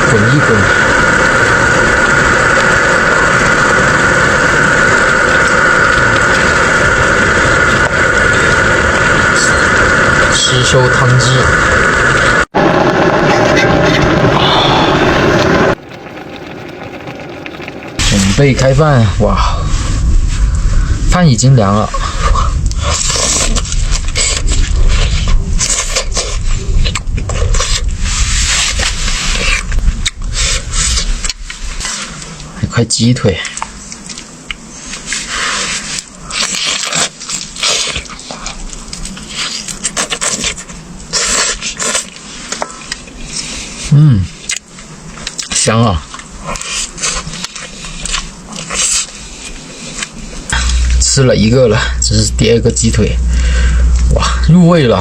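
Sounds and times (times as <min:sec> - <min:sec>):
gas stove burner hissing: 0:00.0 - 0:12.5
low rumble: 0:00.0 - 0:31.9, 0:50.4 - 0:55.0
sauce simmering in pan: 0:14.6 - 0:19.6.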